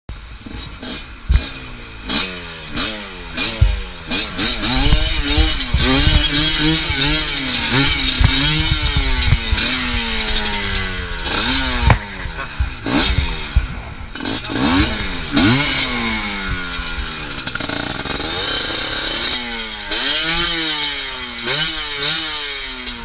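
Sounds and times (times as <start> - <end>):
motorcycle engine revving: 0.1 - 23.0
knocks and clatter: 2.1 - 15.8.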